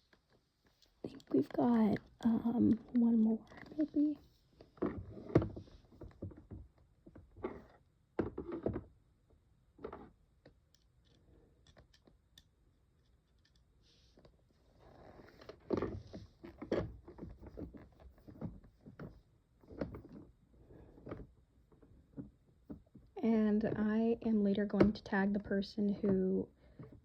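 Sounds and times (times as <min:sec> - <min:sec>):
plastic rubbing: 0:14.1 - 0:23.0.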